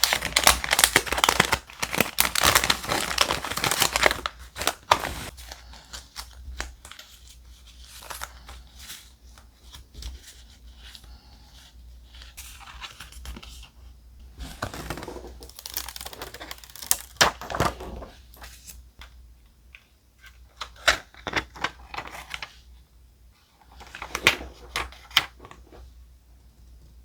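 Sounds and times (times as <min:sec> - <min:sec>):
paper rustling and crinkling: 0:00.0 - 0:18.7.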